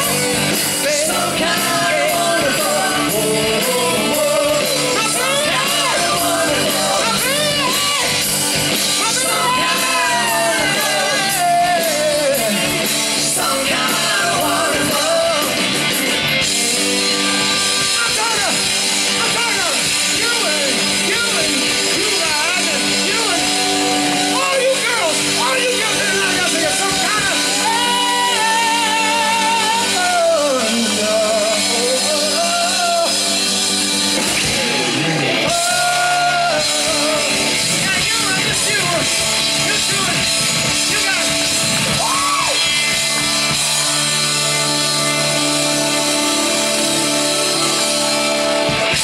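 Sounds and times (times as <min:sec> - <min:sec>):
rock band playing loudly: 0:00.0 - 0:49.0
wordless wailing vocal: 0:09.0 - 0:12.6.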